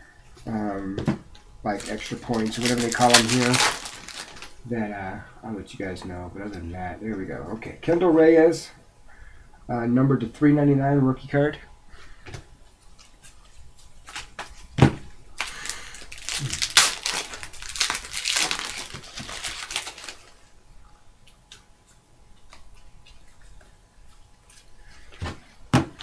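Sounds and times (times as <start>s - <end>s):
wrapper crinkling and tearing: 1.7s - 4.6s, 14.0s - 14.7s, 15.4s - 20.5s.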